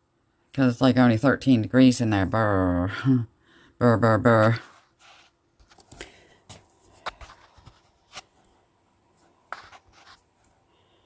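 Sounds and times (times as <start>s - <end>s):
faint rustling and handling: 4.4s - 11.0s.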